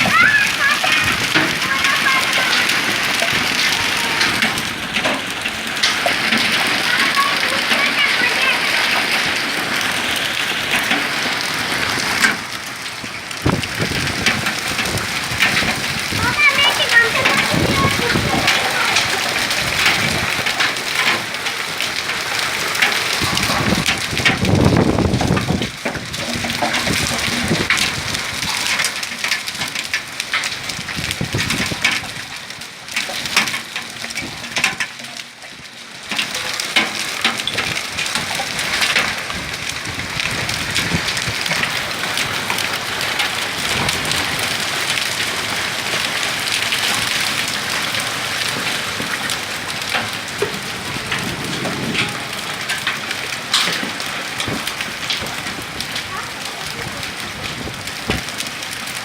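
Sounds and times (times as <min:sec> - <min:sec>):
hail and rain pelting down: 0:00.0 - 0:59.0.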